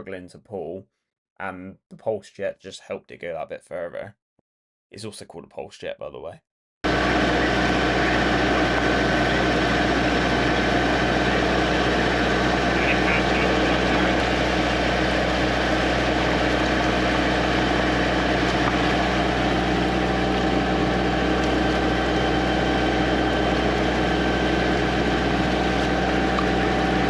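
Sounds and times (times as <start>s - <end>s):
drain jetter engine and pump running: 6.9s - 27.0s.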